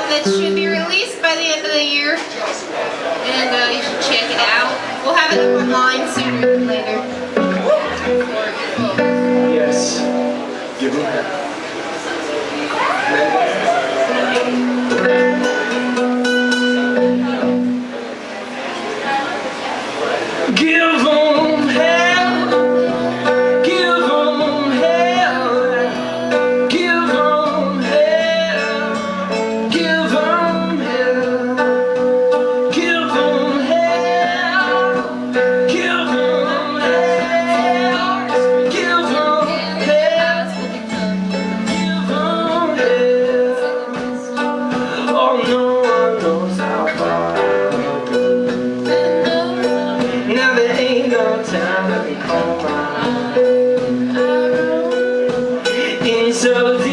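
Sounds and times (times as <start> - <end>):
drums: 0.0 - 56.9
electric guitar: 0.0 - 56.9
person singing: 20.5 - 56.9.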